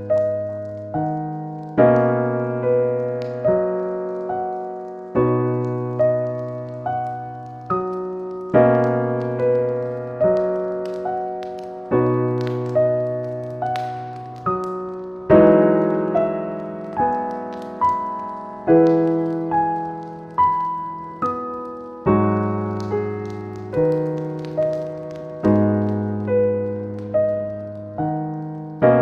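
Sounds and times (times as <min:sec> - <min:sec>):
gentle solo piano music: 0:00.0 - 0:29.0.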